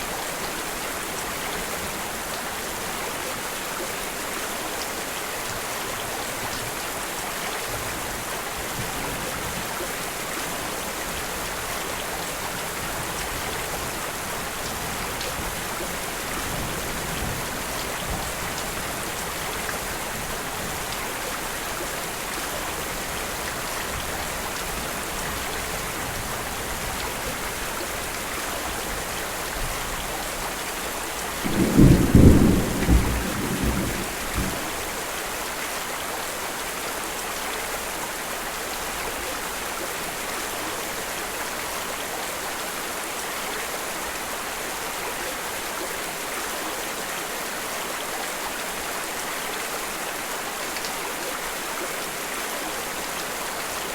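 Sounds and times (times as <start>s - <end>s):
heavy rain: 0.0s - 53.9s
thunder rumble: 31.4s - 34.8s.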